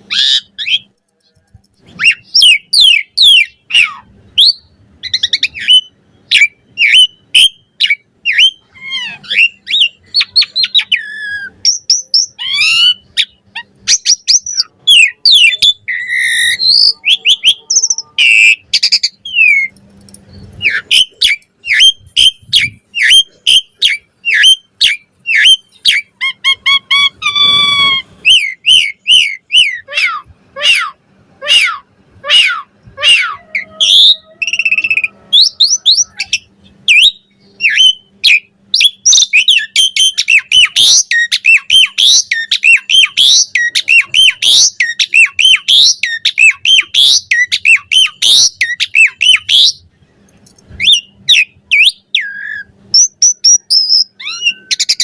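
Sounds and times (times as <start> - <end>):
starling singing: 0.0 - 50.2, 50.8 - 55.0.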